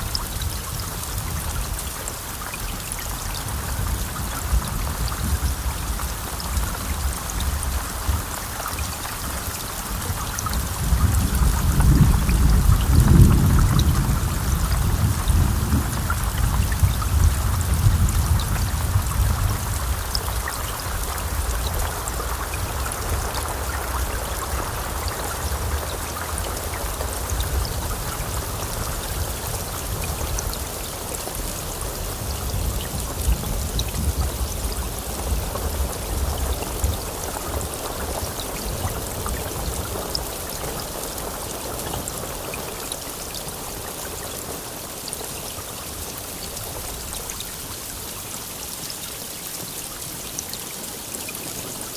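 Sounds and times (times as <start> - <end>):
heavy rain falling: 0.0 - 51.9
low thunder rumble: 3.4 - 42.6.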